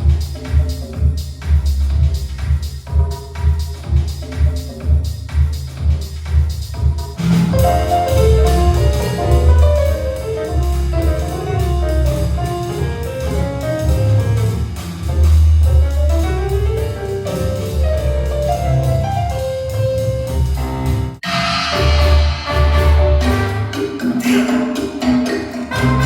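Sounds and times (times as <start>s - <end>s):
music with heavy bass: 0.0s - 26.0s.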